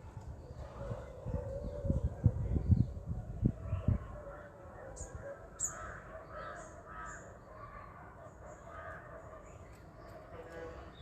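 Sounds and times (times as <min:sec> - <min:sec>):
birds calling: 0:04.8 - 0:11.0.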